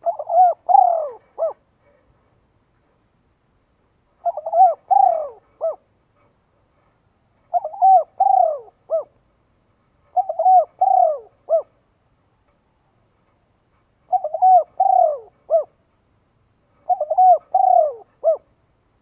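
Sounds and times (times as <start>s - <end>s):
bird calling: 0.0s - 1.6s, 4.2s - 5.9s, 7.5s - 9.2s, 10.1s - 11.8s, 14.1s - 15.8s, 16.8s - 18.5s.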